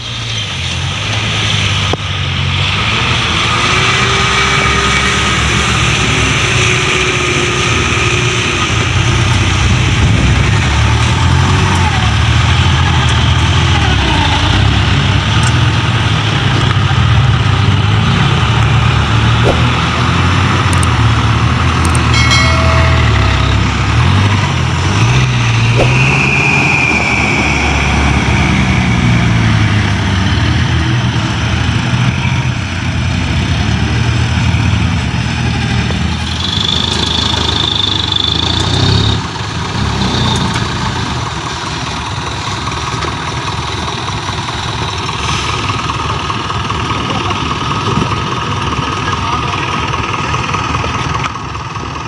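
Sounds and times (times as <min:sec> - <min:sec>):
dump truck diesel engines: 0:00.0 - 0:52.0
high whine: 0:21.8 - 0:28.9.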